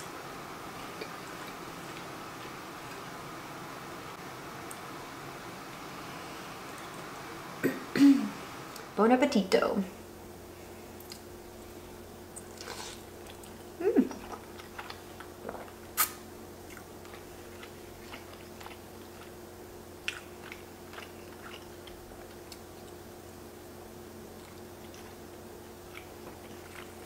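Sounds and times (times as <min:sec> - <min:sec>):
faint steady hum: 0:00.0 - 0:27.0
person chewing noodles: 0:10.9 - 0:23.1, 0:24.2 - 0:27.0.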